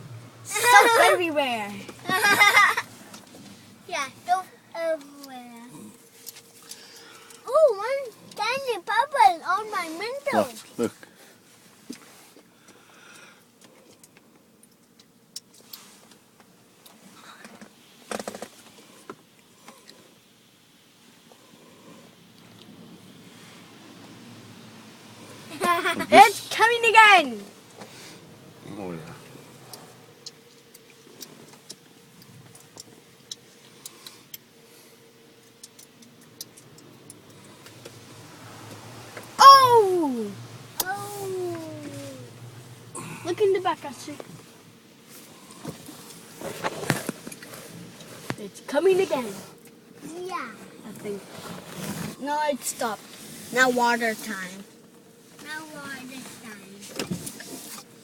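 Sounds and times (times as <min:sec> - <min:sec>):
faint steady hum: 0:00.0 - 0:58.0
small ticks and clicks: 0:11.9 - 0:18.7, 0:29.7 - 0:34.5, 0:35.4 - 0:38.0
car wash hiss: 0:51.1 - 0:54.6.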